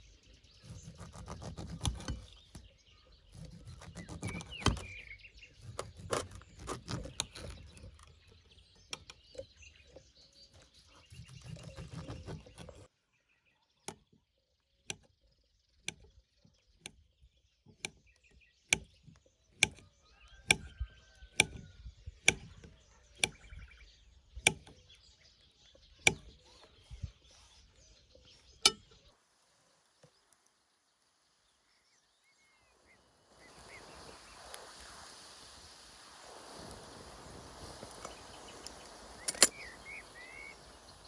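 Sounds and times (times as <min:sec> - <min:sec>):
faint birds chirping: 0:00.0 - 0:41.0
blade chopping wood: 0:00.7 - 0:02.7, 0:03.4 - 0:05.0, 0:05.6 - 0:08.2, 0:20.5 - 0:20.7, 0:21.3 - 0:23.6, 0:24.4 - 0:24.8, 0:26.1 - 0:26.4.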